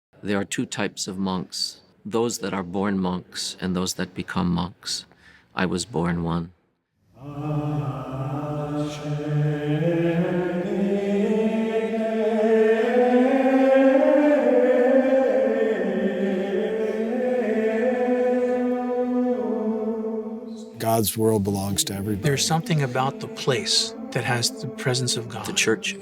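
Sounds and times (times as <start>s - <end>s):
men chanting in low voices: 20.5s - 26.0s.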